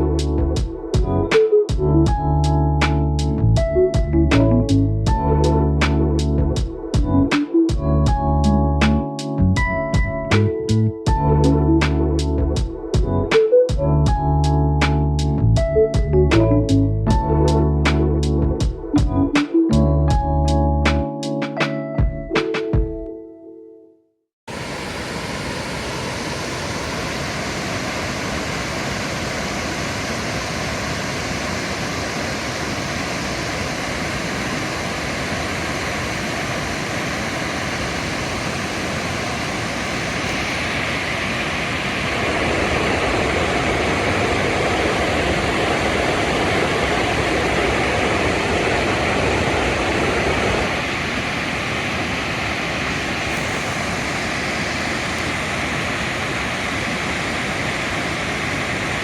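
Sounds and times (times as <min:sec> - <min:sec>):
waterfall rushing: 0:24.5 - 0:59.0.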